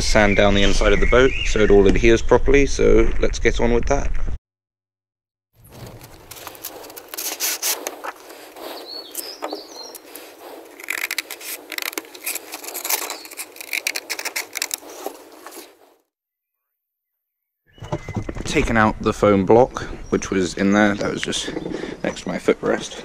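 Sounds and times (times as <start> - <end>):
sandpaper pack crinkling: 5.6 - 15.9
scissors cutting sandpaper: 5.7 - 15.8.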